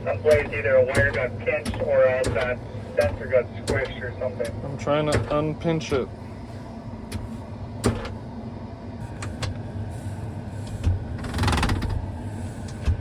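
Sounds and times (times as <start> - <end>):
combine engine drone in cab: 0.0 - 13.0.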